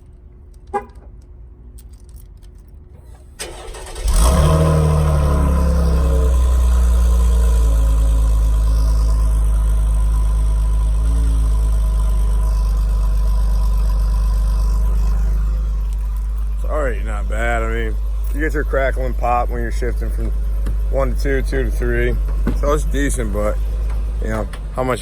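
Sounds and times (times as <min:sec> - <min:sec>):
car engine starting and idling: 0:00.0 - 0:25.0
starter motor cranking: 0:03.0 - 0:06.9.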